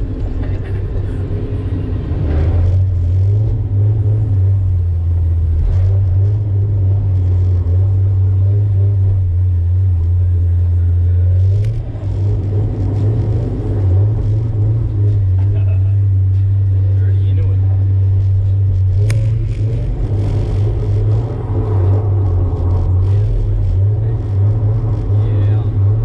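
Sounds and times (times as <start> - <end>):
car engine droning: 0.0 - 26.0.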